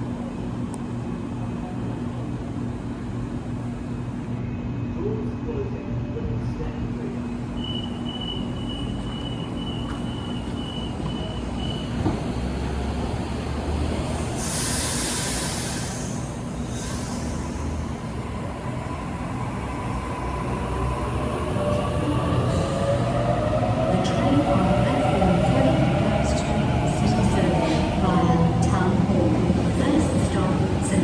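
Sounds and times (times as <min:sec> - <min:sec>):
train rumble: 0:00.0 - 0:31.0
air hiss bursts: 0:14.4 - 0:17.8.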